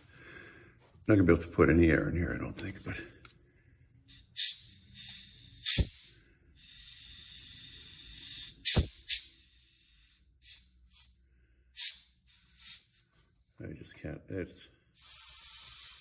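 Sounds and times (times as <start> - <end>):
air hissing from hose port: 4.1 - 11.2, 11.8 - 13.1, 15.0 - 16.0
sharp pops: 4.4 - 6.1, 8.2 - 9.5.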